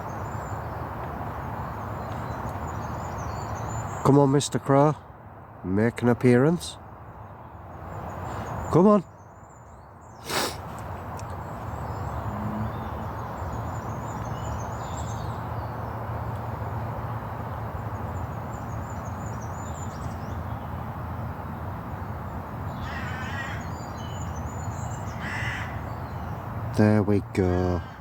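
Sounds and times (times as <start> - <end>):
small birds chirping: 0.0 - 28.0
crow cawing: 22.8 - 23.8, 25.1 - 25.9, 27.5 - 28.0.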